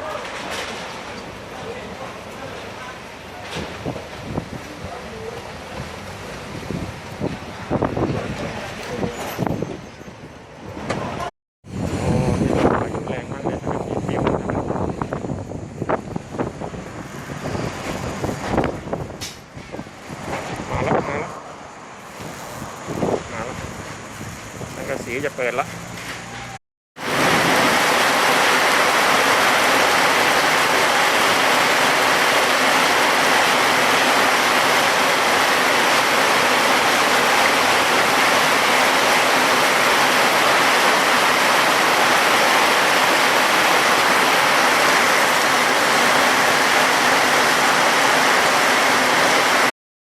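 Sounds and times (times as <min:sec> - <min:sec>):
heavy rain pouring: 0:14.8 - 0:25.6, 0:26.5 - 0:49.7.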